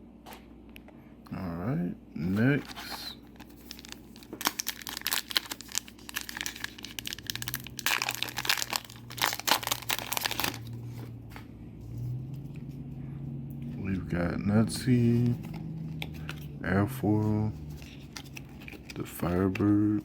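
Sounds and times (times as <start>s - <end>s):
foil wrapper crinkling: 2.6s - 10.8s.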